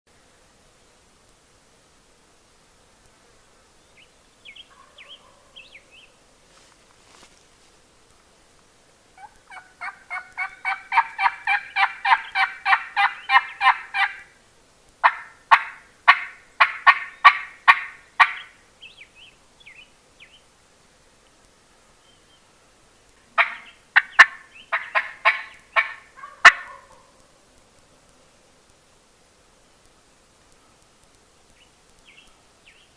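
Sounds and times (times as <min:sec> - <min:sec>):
turkey yelping: 0:04.7 - 0:05.6, 0:09.2 - 0:14.3, 0:15.0 - 0:18.5, 0:23.4 - 0:27.2.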